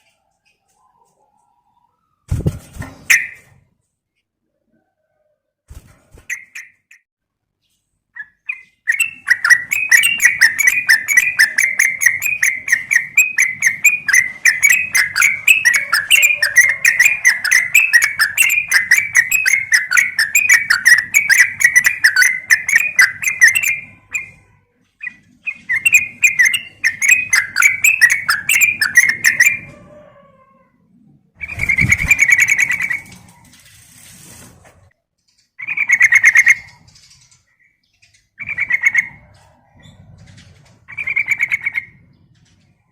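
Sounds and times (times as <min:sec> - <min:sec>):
bird chattering calls: 0:08.2 - 0:24.4, 0:25.0 - 0:29.7, 0:40.9 - 0:42.0.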